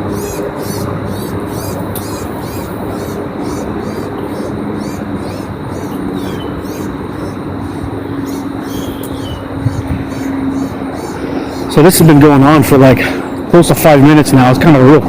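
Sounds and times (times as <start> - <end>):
small bird distress calls: 0.0 - 12.0
low mechanical hum: 0.0 - 15.0.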